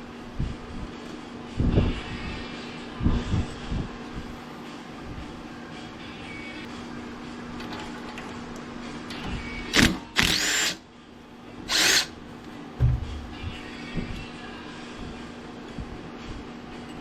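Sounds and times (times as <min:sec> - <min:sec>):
power drill backing out screws: 0:09.7 - 0:10.8, 0:11.7 - 0:12.1
low thump: 0:12.8 - 0:13.6.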